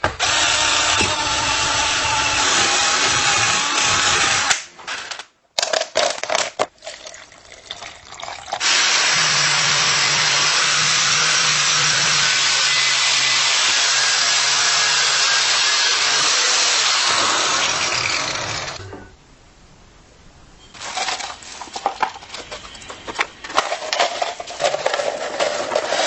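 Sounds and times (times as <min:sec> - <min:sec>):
low hum: 0:18.6 - 0:20.7.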